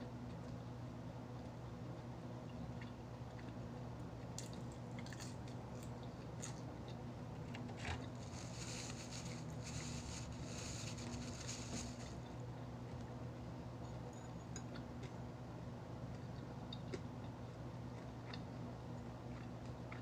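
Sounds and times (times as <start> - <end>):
steady low hum: 0.0 - 20.0
crunching on fried chicken: 3.4 - 7.2.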